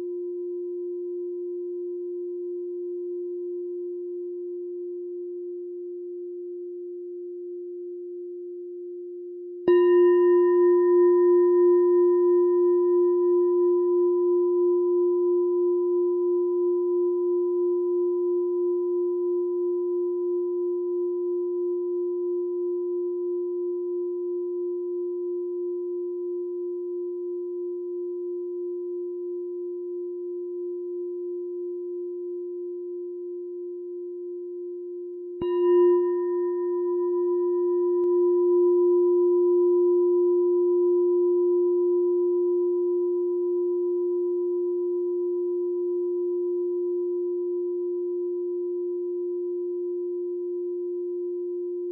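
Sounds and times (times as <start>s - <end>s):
meditation bell ringing: 9.6s - 19.7s, 35.4s - 51.8s.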